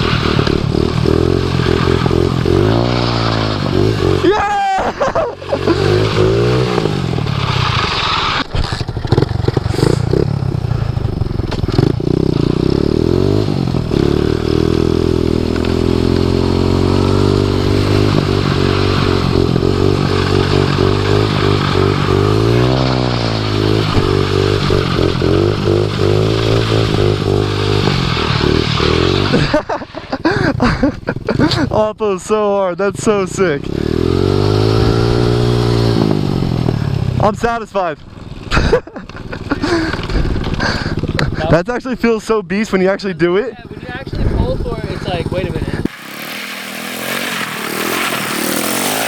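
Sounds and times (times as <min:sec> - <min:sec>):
small engine revving high: 0:00.0 - 0:11.0, 0:11.7 - 0:29.7, 0:33.4 - 0:37.2, 0:45.4 - 0:49.0.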